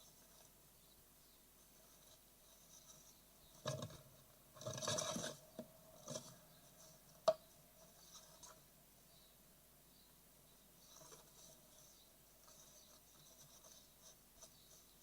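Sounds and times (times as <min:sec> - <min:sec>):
nestlings scratching in nest box: 0:01.7 - 0:07.0.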